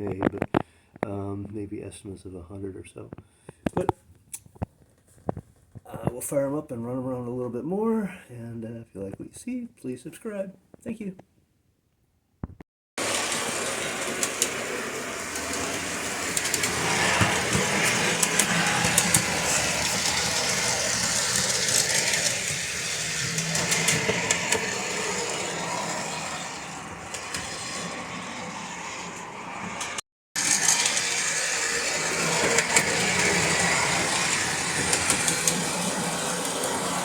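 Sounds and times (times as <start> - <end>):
toy train wheels clicking: 13.0 - 29.0, 30.4 - 37.0
toy train motor whirring: 13.0 - 37.0.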